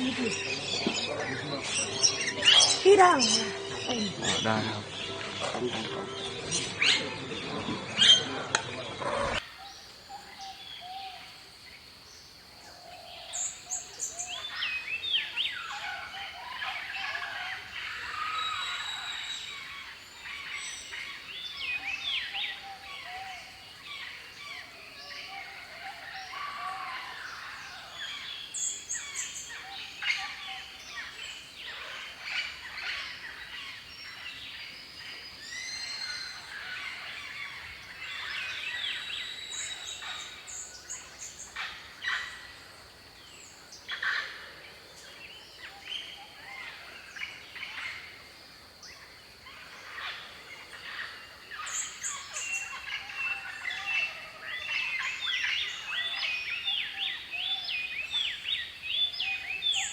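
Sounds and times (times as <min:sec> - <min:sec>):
high pulsing bird call: 0:00.0 - 0:09.0
birds chirping and trilling: 0:00.0 - 0:59.9.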